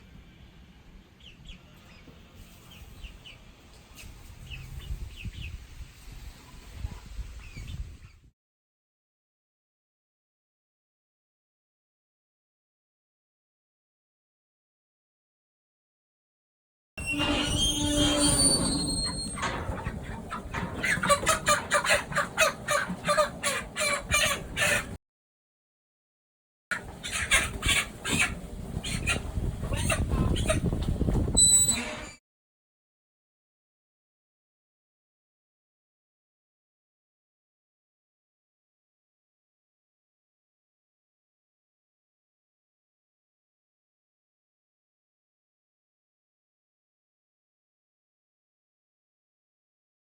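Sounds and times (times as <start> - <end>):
chickens clucking: 17.2 - 25.0, 26.7 - 31.4.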